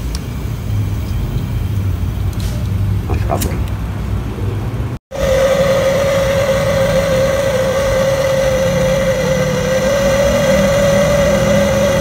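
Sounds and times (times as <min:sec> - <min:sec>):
small motor whining: 0:05.2 - 0:12.0.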